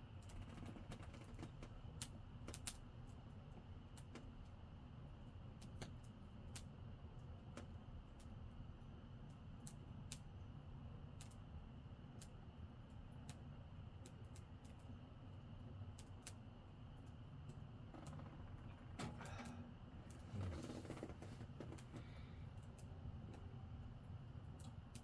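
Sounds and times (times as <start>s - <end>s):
low steady rumble: 17.2s - 25.0s.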